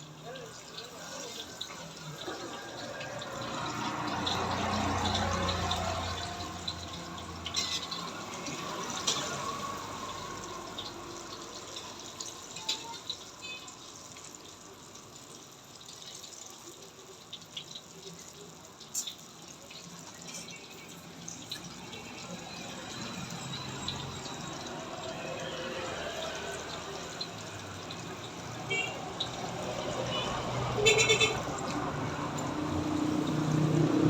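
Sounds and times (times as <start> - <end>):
food sizzling in hot oil: 0.0 - 34.0.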